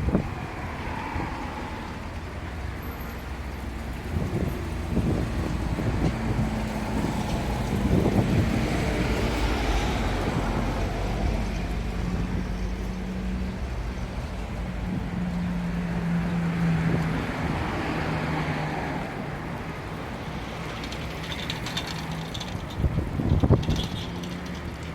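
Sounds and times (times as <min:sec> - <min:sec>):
wind gusting on microphone: 0:00.0 - 0:02.7, 0:03.3 - 0:24.9
road traffic: 0:00.0 - 0:24.9
brief clatter: 0:20.8 - 0:24.9.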